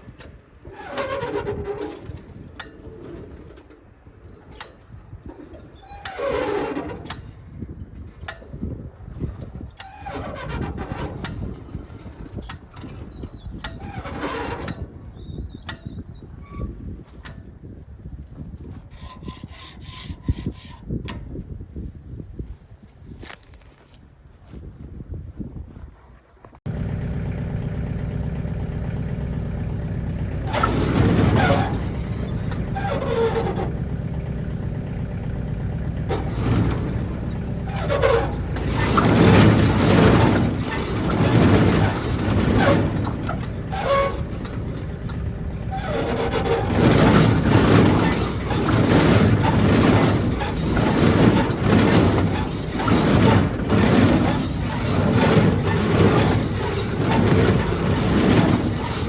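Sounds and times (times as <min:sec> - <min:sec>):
tractor engine running: 0:26.7 - 0:59.0.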